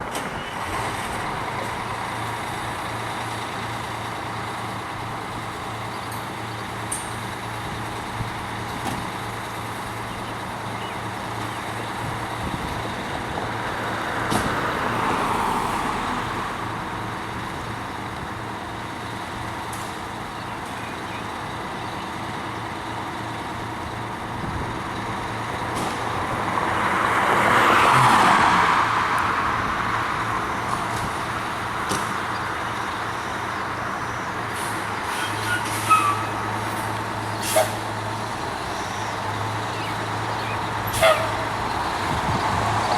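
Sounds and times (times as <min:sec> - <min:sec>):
engine hum of traffic: 0:00.0 - 0:42.9
vehicles passing: 0:00.0 - 0:42.9.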